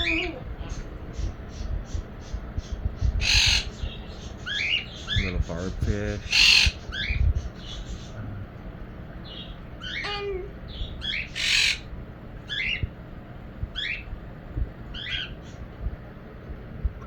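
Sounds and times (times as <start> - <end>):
harsh loud parrot squawk: 0.0 - 0.8, 3.2 - 3.8, 6.2 - 7.2, 9.8 - 11.9
parrots squawking: 0.0 - 8.2, 9.2 - 12.9, 13.7 - 14.1, 14.9 - 15.6.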